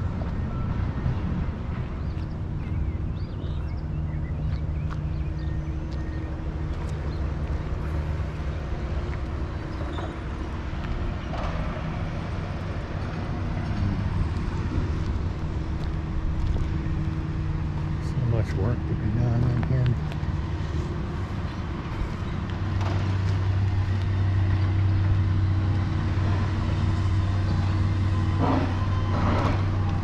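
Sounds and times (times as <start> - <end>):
engine humming: 0.0 - 30.0.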